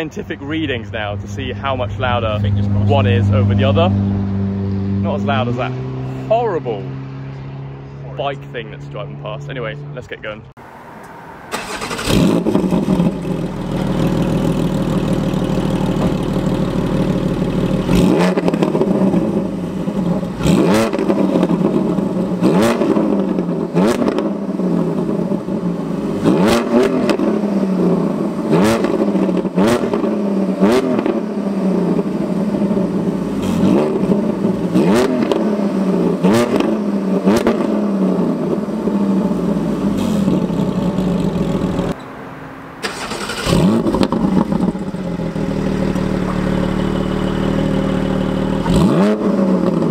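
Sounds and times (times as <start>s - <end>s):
car engine revving in blips: 10.9s - 49.9s.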